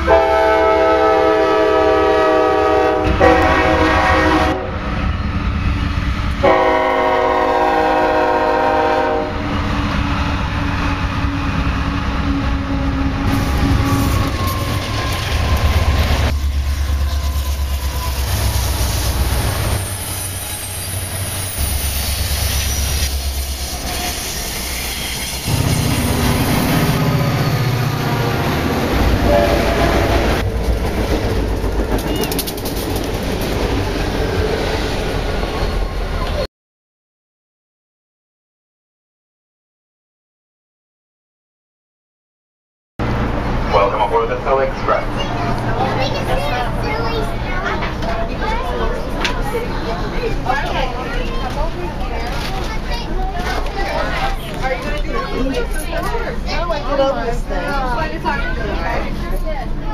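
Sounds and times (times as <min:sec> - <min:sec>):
locomotive air horn blasts: 0:00.0 - 0:04.8, 0:06.4 - 0:09.4, 0:29.0 - 0:30.4
wheels clattering over rail joints: 0:30.4 - 0:34.3.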